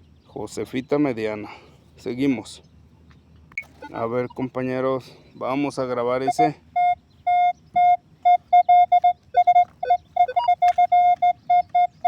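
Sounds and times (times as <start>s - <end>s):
metal detector beeping tone: 3.6s - 4.5s, 6.2s - 12.0s.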